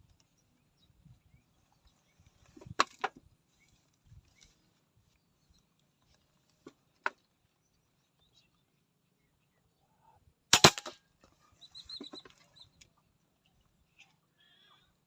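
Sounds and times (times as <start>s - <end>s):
air rifle shots: 10.5s - 11.0s.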